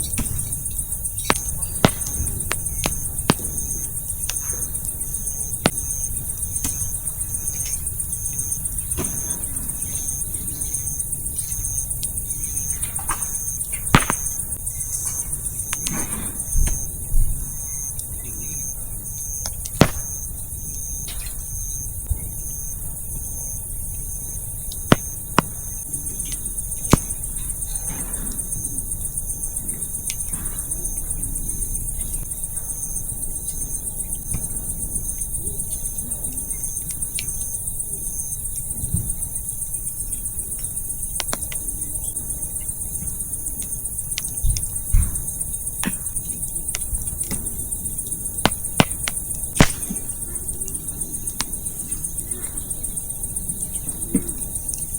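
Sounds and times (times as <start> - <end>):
firewood popping: 0.0 - 11.0, 12.4 - 16.8, 19.4 - 21.3, 24.8 - 28.6, 48.3 - 50.3
campfire crackling: 0.0 - 18.0, 19.1 - 21.6, 23.4 - 29.0, 45.7 - 52.2
crickets and insects chirping: 0.0 - 54.9.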